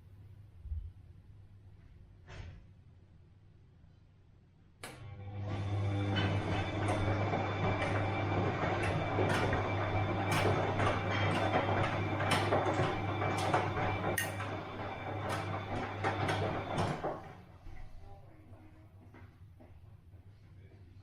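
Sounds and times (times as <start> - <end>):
washing machine churning: 5.0 - 17.8
washing machine swishes: 5.3 - 17.4.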